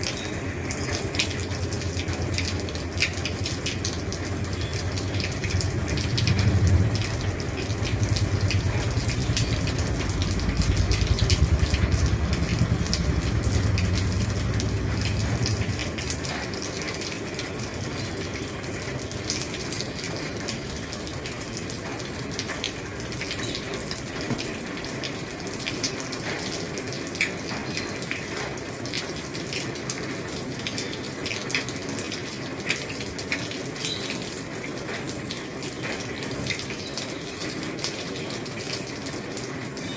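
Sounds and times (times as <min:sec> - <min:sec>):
heavy rain on a roof: 0:00.0 - 0:39.9
low rumble: 0:02.4 - 0:16.6.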